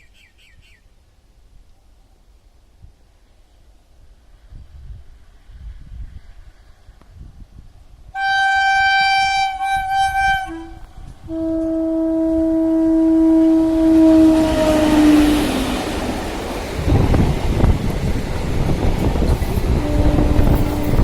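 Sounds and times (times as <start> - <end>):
rush of approaching train: 2.7 - 21.0
train horn blasts: 8.1 - 16.1, 19.5 - 21.0.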